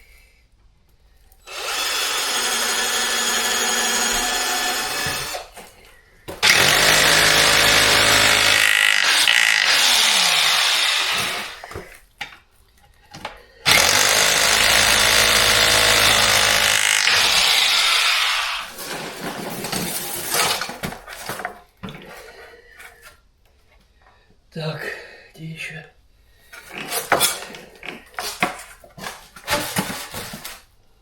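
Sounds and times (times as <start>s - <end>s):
electric power tool running: 6.4s - 11.7s, 13.7s - 18.7s.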